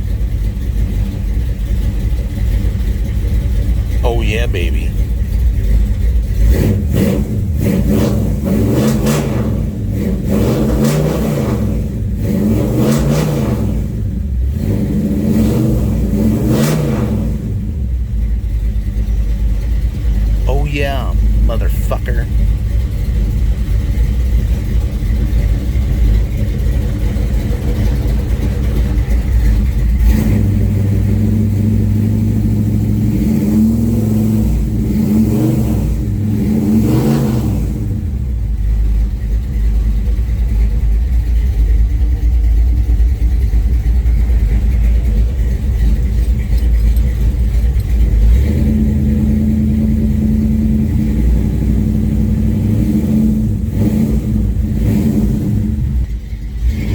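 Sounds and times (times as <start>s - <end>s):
car engine running and revving: 0.0s - 4.0s, 5.0s - 20.4s, 22.1s - 56.9s.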